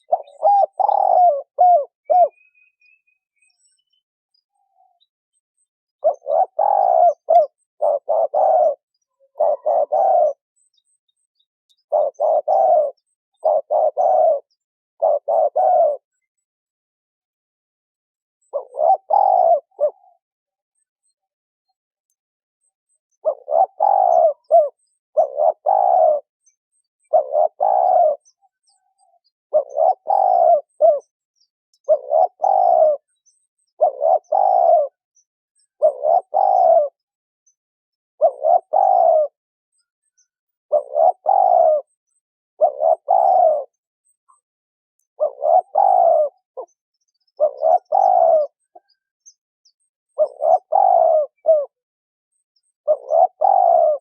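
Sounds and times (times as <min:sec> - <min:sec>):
dove cooing: 0:00.0 - 0:03.0, 0:06.0 - 0:10.7, 0:11.7 - 0:16.3, 0:18.4 - 0:20.2, 0:23.1 - 0:26.3, 0:27.0 - 0:31.2, 0:31.8 - 0:35.0, 0:35.7 - 0:37.2, 0:38.2 - 0:40.0, 0:40.7 - 0:41.9, 0:42.6 - 0:44.4, 0:45.1 - 0:49.0, 0:50.2 - 0:51.8, 0:52.8 - 0:54.0.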